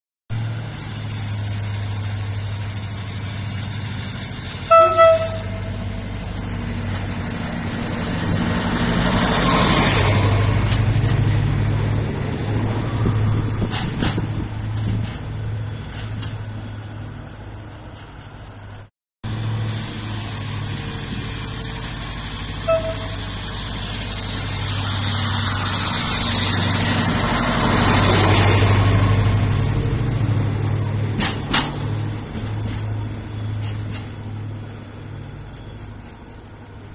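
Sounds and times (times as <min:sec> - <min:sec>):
train running hum: 0:00.3 - 0:36.9
wheel and rail noise: 0:00.3 - 0:36.9
train horn toots: 0:04.6 - 0:05.9, 0:22.6 - 0:23.3.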